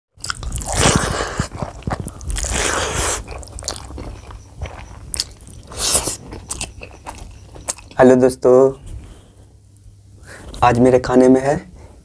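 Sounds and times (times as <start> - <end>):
person chewing wetly: 0.2 - 8.0.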